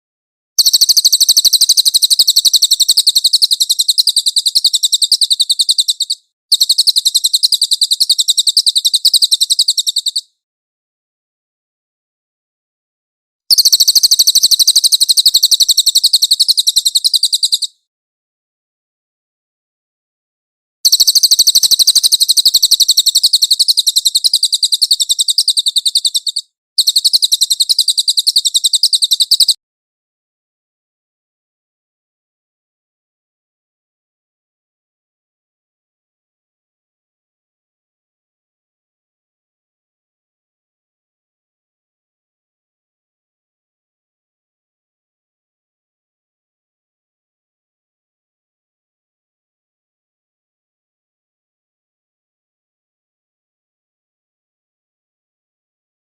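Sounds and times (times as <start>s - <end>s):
songbird trilling high chirps: 0.6s - 10.3s, 13.5s - 17.7s, 20.9s - 29.6s.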